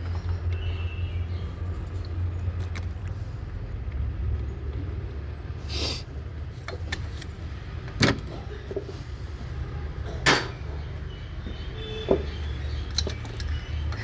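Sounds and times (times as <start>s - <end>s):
tools and metal parts clattering: 10.1s - 10.8s, 11.4s - 14.0s.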